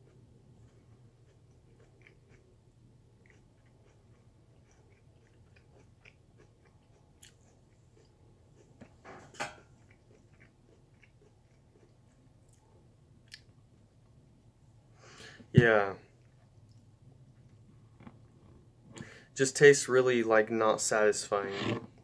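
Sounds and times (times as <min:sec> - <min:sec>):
crisp chewing of raw vegetable: 0:00.0 - 0:09.0, 0:09.6 - 0:13.5.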